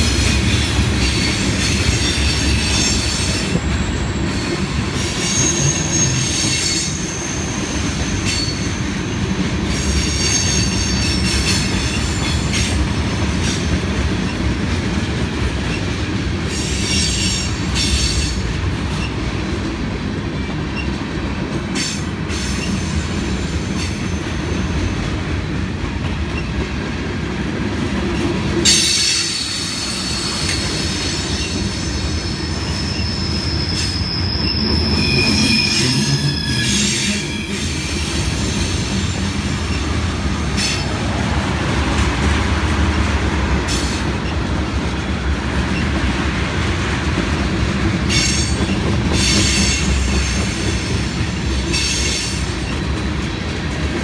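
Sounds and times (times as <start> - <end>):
train wheels rumbling on rail: 0.0 - 54.0
high-pitched wheel squeal: 1.1 - 12.3, 28.7 - 40.8.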